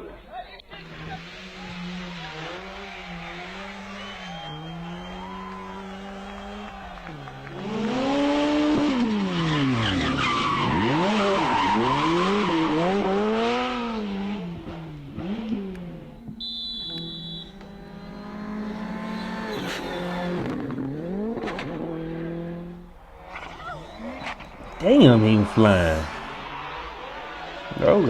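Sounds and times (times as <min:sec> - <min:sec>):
rally car engine revving: 0:00.6 - 0:28.0
tyres skidding on loose surface: 0:00.7 - 0:15.4, 0:17.7 - 0:28.0
short high beep: 0:16.4 - 0:17.6, 0:19.2 - 0:21.2.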